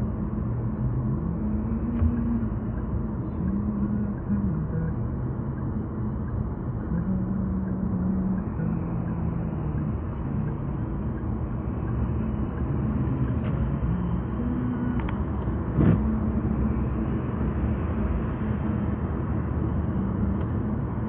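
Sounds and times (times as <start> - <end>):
road and engine rumble: 0.0 - 21.0.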